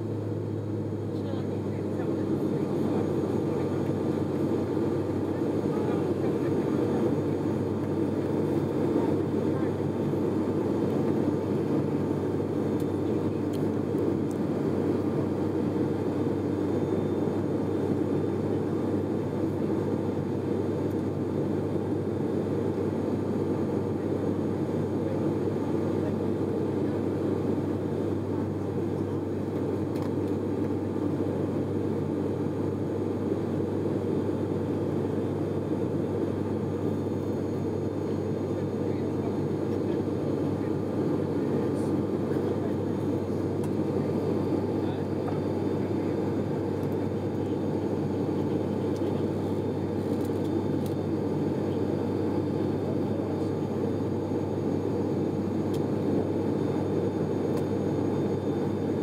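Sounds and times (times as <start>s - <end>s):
turboprop engines droning: 0.0s - 59.0s.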